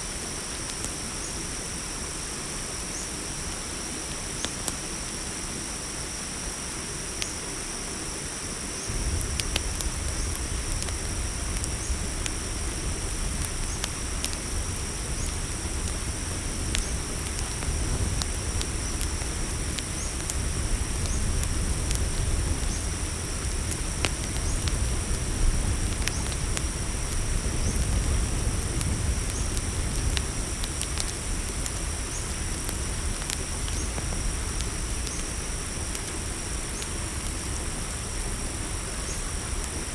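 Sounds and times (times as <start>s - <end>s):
campfire crackling: 0.0s - 39.9s
crickets chirring: 0.0s - 39.9s
low rumble: 8.9s - 15.2s
sharp pops of fire: 8.9s - 38.4s.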